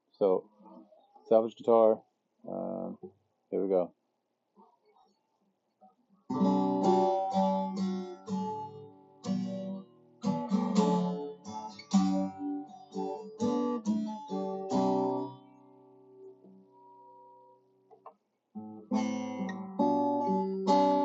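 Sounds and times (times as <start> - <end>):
acoustic guitar strumming chords: 6.3 - 15.8, 18.6 - 21.0.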